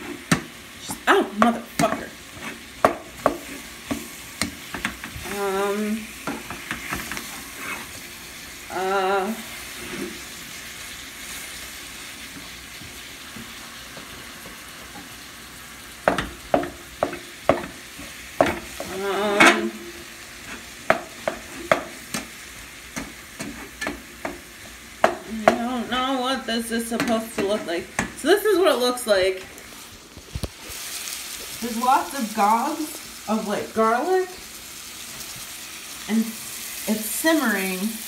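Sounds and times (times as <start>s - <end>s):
vegetables sizzling in oil: 0.0s - 38.0s
spoon stirring and knocking pot: 2.8s - 5.2s, 16.0s - 19.7s, 20.8s - 22.3s, 22.9s - 25.9s, 26.9s - 28.2s.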